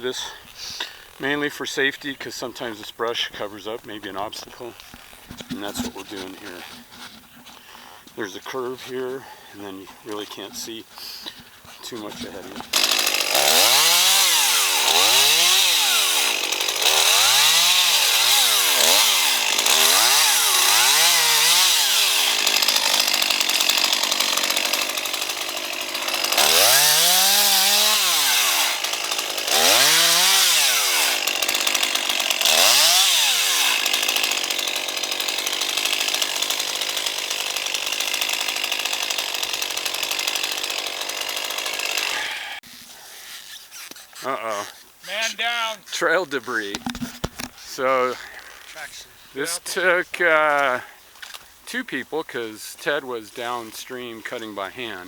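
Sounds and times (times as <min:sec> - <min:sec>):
chainsaw revving: 0:03.8 - 0:07.6, 0:11.4 - 0:45.7, 0:46.5 - 0:50.9.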